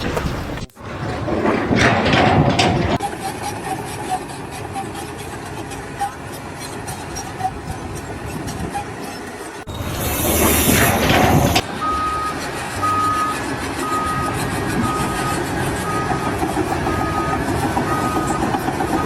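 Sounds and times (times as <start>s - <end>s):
low engine rumble: 0.0s - 19.0s
loud hissing rush: 9.7s - 11.6s
reversing alarm beeping: 9.7s - 19.0s.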